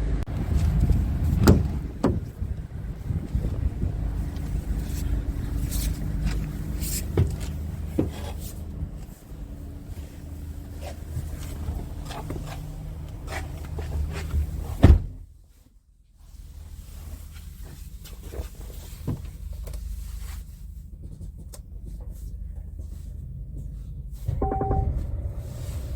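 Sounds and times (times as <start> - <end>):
diesel engine idling: 0.0 - 14.6, 21.8 - 25.9
clicks and knocks: 24.3 - 25.3
loud thump: 24.3 - 25.3.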